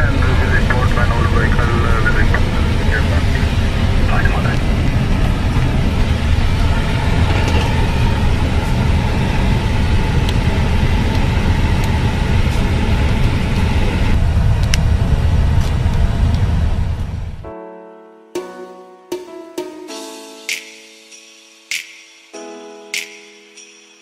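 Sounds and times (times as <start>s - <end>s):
faint steady whine: 0.0s - 17.4s
jet engines rumbling: 0.0s - 17.5s.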